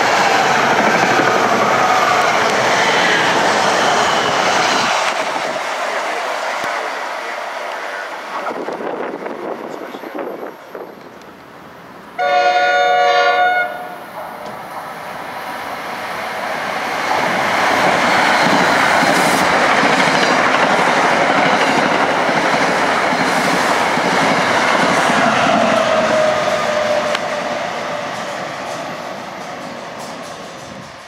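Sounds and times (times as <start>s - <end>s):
train passing at speed: 0.0s - 31.0s
train horn chord: 12.2s - 14.0s.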